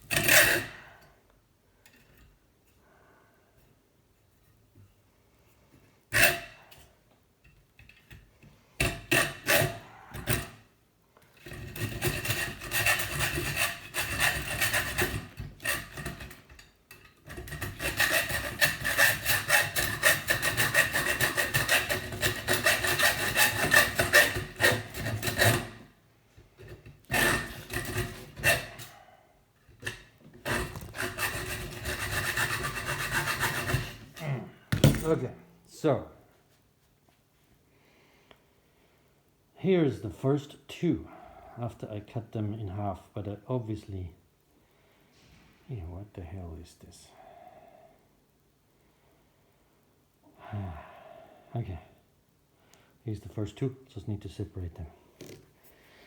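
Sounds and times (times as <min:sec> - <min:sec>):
hand saw cutting metal tube: 0:00.0 - 0:00.8, 0:06.1 - 0:06.9, 0:08.8 - 0:10.6, 0:11.4 - 0:16.6, 0:17.2 - 0:25.8, 0:26.7 - 0:29.0, 0:29.8 - 0:34.1.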